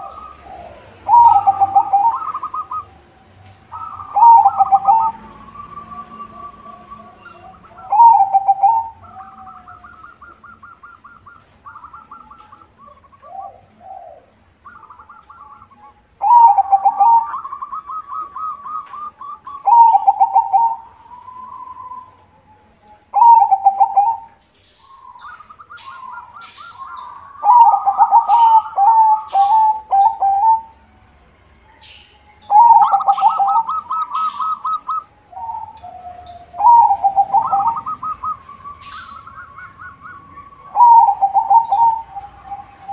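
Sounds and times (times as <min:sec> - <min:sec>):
dove cooing: 0:00.0 - 0:30.8, 0:32.4 - 0:42.9.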